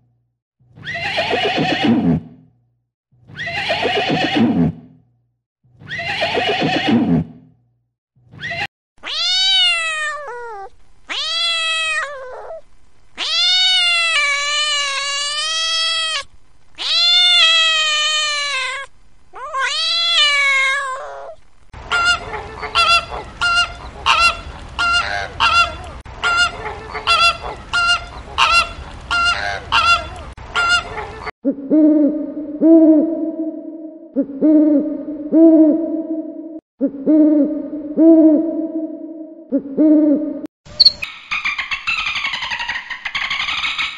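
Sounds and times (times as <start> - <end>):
long low hoots: 31.5 - 40.4
high rising and falling animal calls: 41.0 - 43.9.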